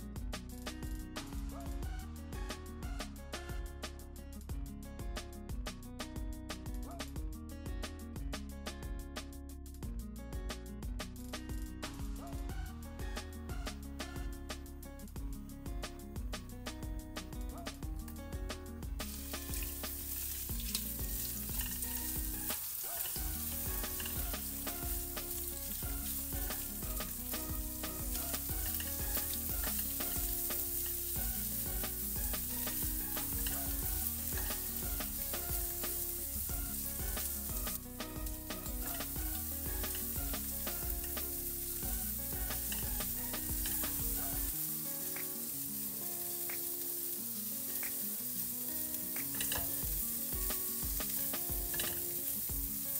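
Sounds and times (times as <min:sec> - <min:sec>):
shrimp sizzling in hot oil: 0:19.0 - 0:52.9
spatula stirring in wok: 0:19.2 - 0:37.7, 0:38.6 - 0:44.5.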